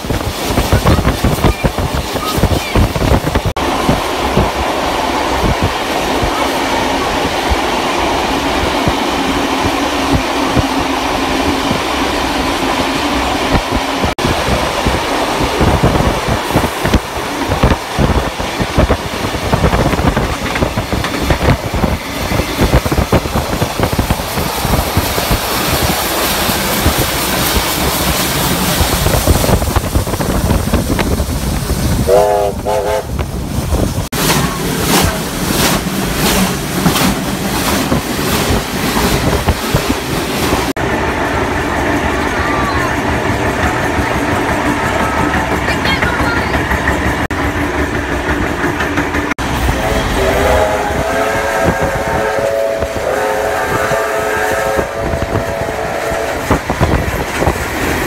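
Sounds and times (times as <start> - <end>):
train wheels clattering: 7.0 - 58.0
wavering train whistle: 32.1 - 33.2, 49.8 - 56.6.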